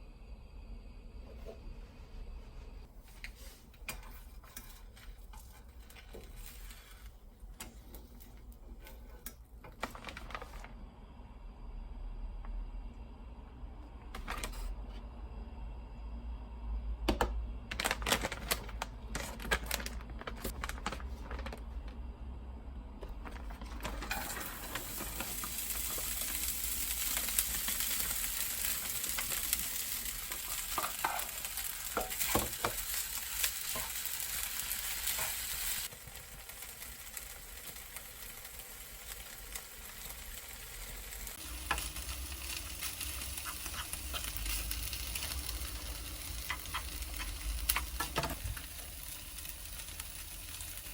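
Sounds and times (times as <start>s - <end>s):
food sizzling in a frying pan: 23.9s - 50.9s.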